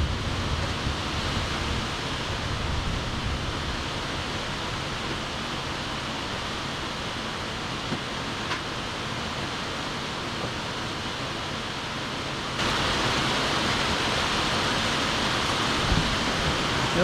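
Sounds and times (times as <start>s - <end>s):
low rumble: 0.0s - 3.8s
stormy weather rushing: 0.0s - 10.8s, 12.4s - 17.0s.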